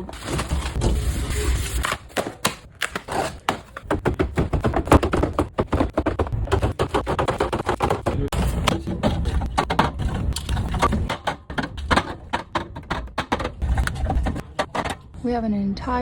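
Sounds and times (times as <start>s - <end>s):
cans and bottles clinking: 3.4s - 15.1s.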